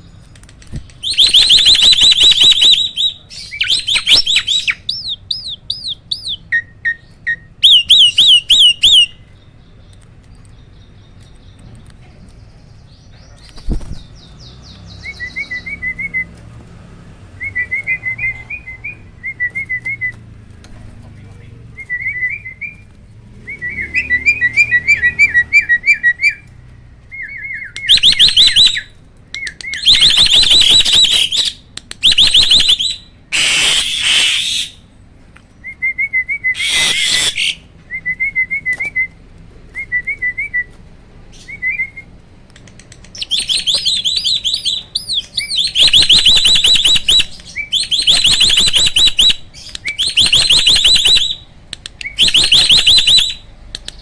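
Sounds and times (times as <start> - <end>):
starling trills: 32.1 - 34.9, 36.4 - 37.8.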